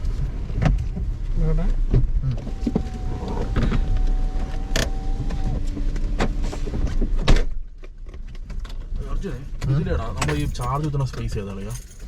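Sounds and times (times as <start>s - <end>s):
car rumbling: 0.0s - 12.0s
electric window motor whine: 2.4s - 6.6s.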